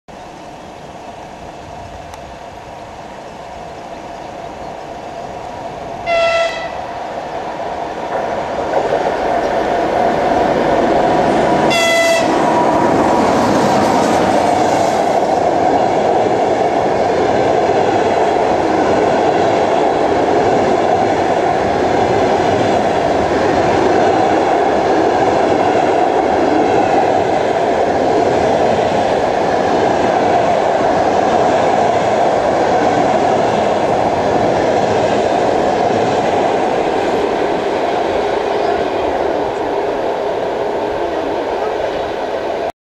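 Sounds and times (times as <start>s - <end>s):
train rumble: 0.1s - 42.7s
train wheels rolling on rails: 0.1s - 42.7s
locomotive horn blasts: 6.0s - 6.9s, 11.7s - 12.4s.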